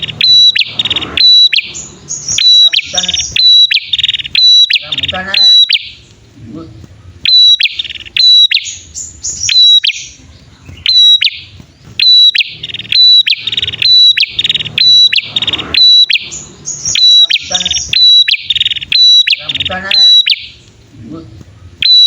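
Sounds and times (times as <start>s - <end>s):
bird sharp chirps: 0.0s - 6.3s, 7.2s - 20.9s, 21.7s - 22.0s
bird buzzy trills: 0.0s - 22.0s.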